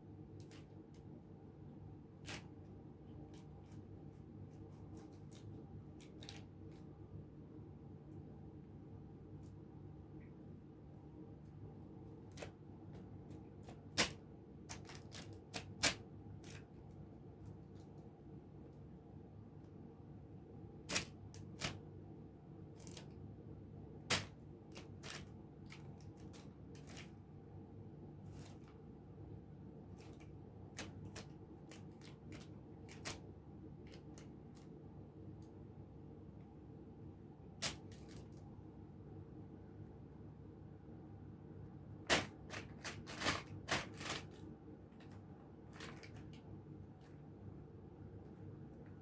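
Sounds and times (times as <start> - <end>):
faint low hum: 0.0 - 49.0
plastic bag crackling: 13.6 - 16.6, 24.1 - 27.2, 30.0 - 33.2, 42.0 - 46.4.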